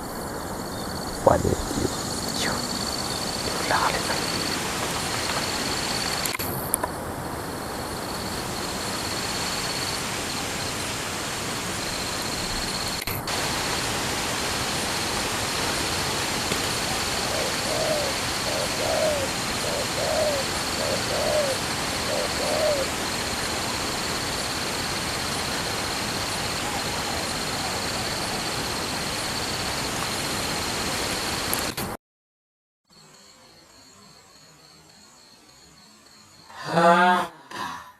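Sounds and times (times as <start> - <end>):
steady hiss: 0.0 - 31.7
dove cooing: 17.0 - 22.9.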